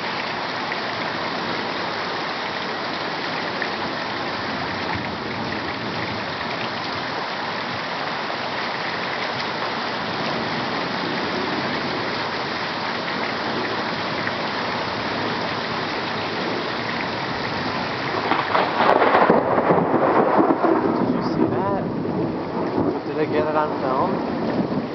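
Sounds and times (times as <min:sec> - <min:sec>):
heavy rain pouring: 0:00.0 - 0:24.9
crackling thunderclap: 0:17.3 - 0:24.9.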